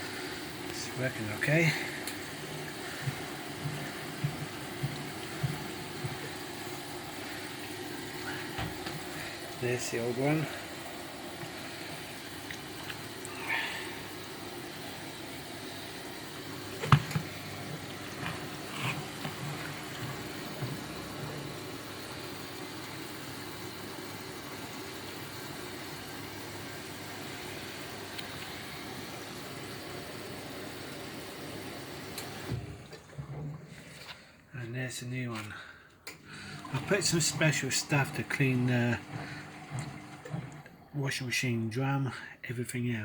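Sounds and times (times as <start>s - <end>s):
washing machine water sloshing: 0.0s - 34.4s, 36.2s - 41.0s
washing machine knocks: 3.0s - 6.5s.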